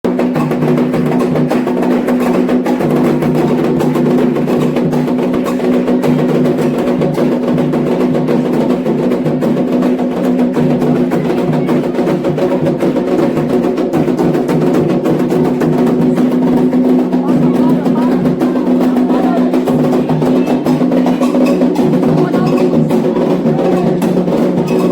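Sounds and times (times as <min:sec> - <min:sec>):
fast hand drum beats: 0:00.0 - 0:24.9
wood block percussion: 0:00.0 - 0:24.9.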